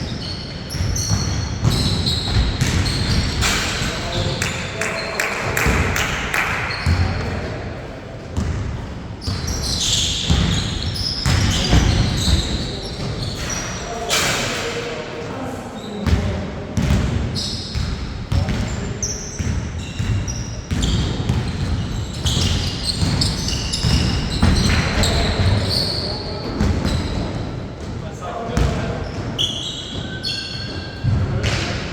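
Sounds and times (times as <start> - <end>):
shoe squeaks: 0.0 - 5.2, 9.2 - 14.2, 17.3 - 27.6, 28.6 - 31.2
basketball bouncing on court: 0.1 - 7.3, 8.4 - 13.5, 16.0 - 31.9.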